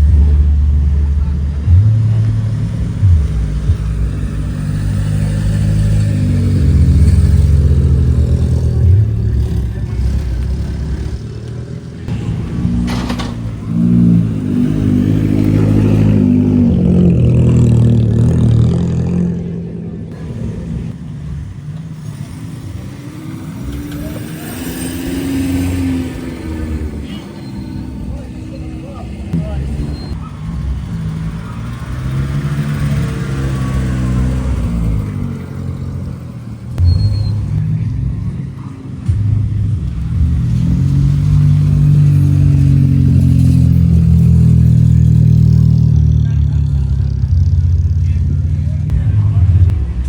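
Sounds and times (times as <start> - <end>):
car engine running: 0.0 - 50.0.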